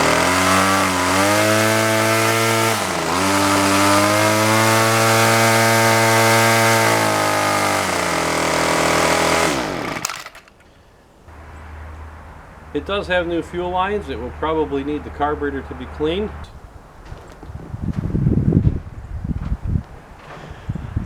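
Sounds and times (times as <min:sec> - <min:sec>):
string trimmer engine running: 0:00.0 - 0:10.6
person speaking: 0:12.7 - 0:16.5.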